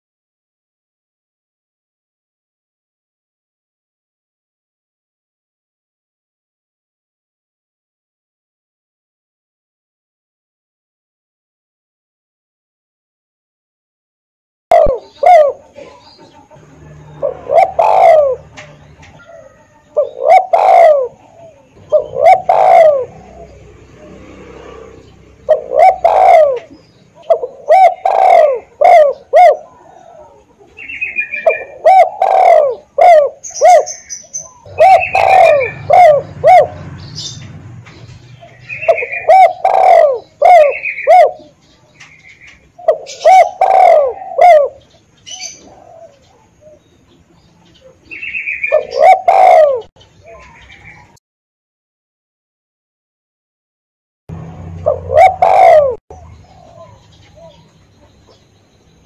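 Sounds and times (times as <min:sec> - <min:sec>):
dove cooing: 0:14.7 - 0:51.2, 0:54.3 - 0:58.5
small bird chirping: 0:32.8 - 0:49.1, 0:56.1 - 0:59.0.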